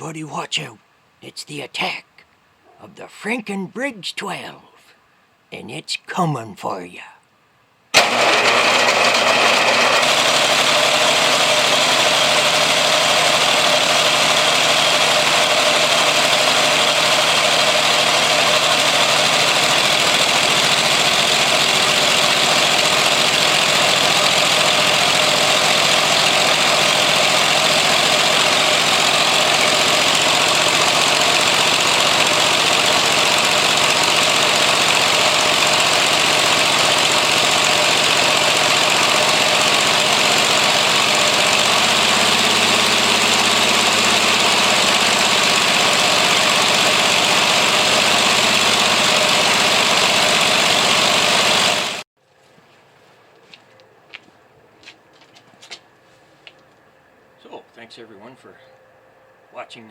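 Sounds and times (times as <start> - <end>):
engine running without mufflers: 8.0 - 52.1.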